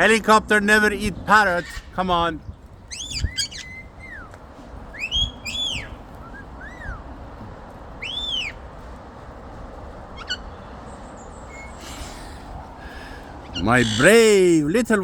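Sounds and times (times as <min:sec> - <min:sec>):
low background rumble: 0:00.0 - 0:14.7
parrots whistling: 0:02.9 - 0:07.2, 0:08.0 - 0:08.6, 0:10.2 - 0:10.6, 0:11.5 - 0:12.3, 0:12.9 - 0:14.2.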